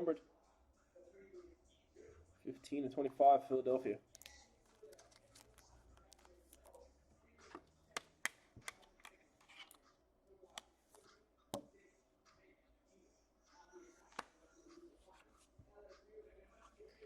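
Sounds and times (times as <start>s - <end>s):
cards rustling: 4.1s - 6.8s.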